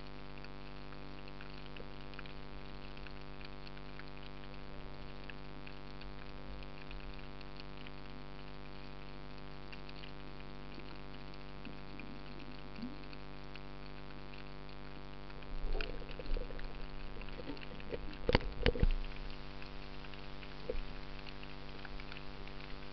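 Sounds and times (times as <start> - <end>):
constant hum: 0.0 - 22.9
underwater water noise: 0.0 - 22.9
knocks and crackles: 15.3 - 22.4.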